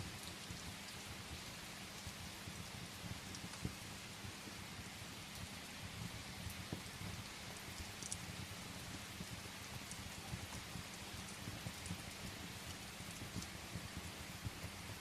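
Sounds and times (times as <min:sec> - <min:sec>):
firewood crackling in fireplace: 0:00.0 - 0:15.0
steady rain: 0:00.0 - 0:15.0.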